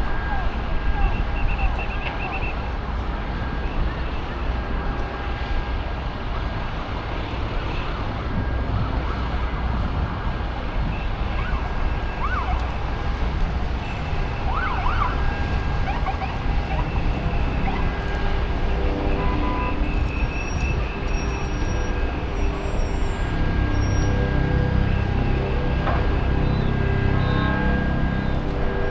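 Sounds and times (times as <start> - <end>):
traffic: 0.0 - 28.9
wind noise: 0.0 - 28.9
distant siren wailing: 10.4 - 28.9.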